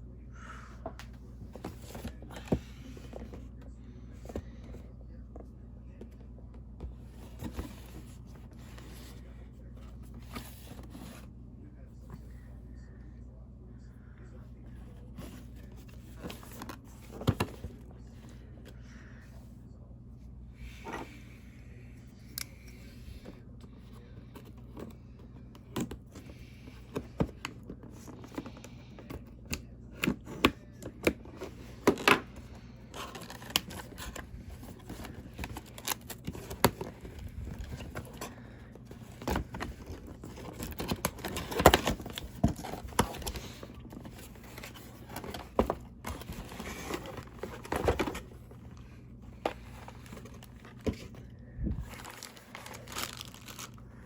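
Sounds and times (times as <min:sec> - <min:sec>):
packaging crinkling and tearing: 0:33.0 - 0:34.2, 0:34.8 - 0:38.3, 0:51.9 - 0:53.8.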